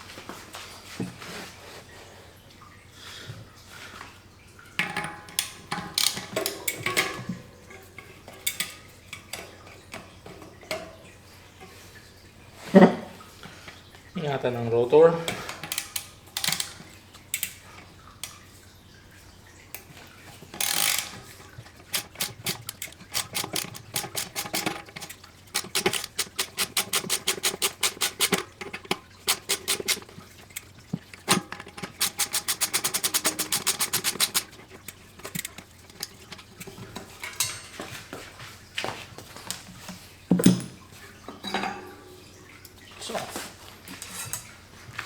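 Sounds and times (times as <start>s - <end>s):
rapid metallic clicking: 15.4s - 17.9s, 20.5s - 37.6s.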